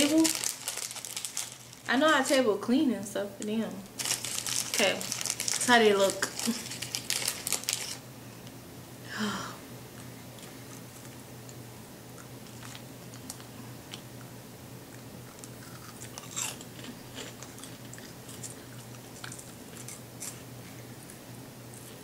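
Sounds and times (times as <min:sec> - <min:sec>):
crunching and chewing snack: 0:00.0 - 0:01.9, 0:04.0 - 0:08.0, 0:12.2 - 0:14.3, 0:14.9 - 0:22.0.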